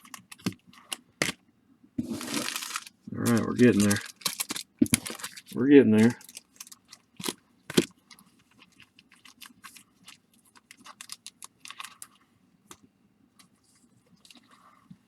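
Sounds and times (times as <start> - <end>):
card packs rustling: 2.0 - 7.9.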